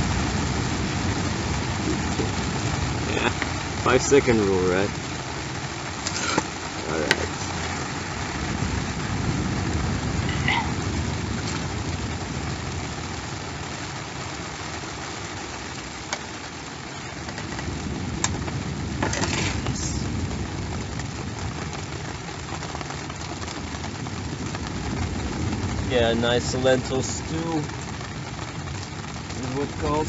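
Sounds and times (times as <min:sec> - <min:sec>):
wind buffeting microphone: 0:00.0 - 0:05.2, 0:07.0 - 0:13.8, 0:17.0 - 0:22.3.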